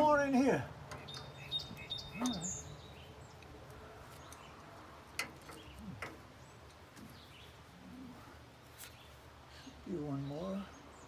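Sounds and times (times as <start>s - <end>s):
faint bird chirps: 1.0s - 3.1s.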